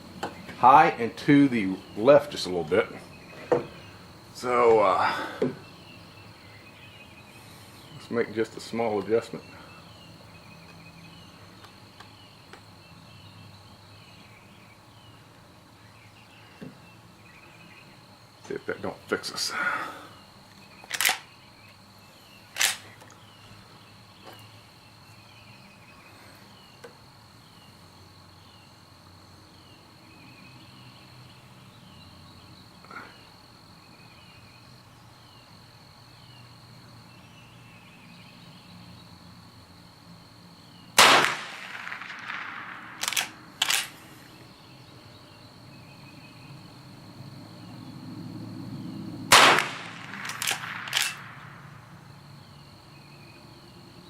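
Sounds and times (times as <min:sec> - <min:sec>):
high insect buzz: 0:00.0 - 0:54.0
rifle shots: 0:41.0 - 0:44.0, 0:49.3 - 0:51.7.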